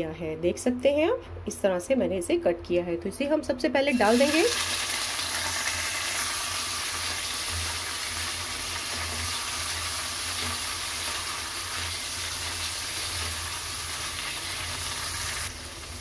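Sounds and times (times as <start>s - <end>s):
food sizzling in hot oil: 3.9s - 16.0s.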